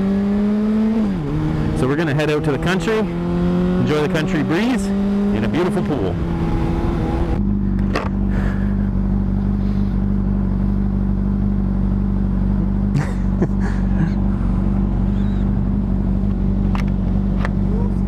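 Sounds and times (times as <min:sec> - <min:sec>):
motorcycle engine idling: 0:07.4 - 0:18.0.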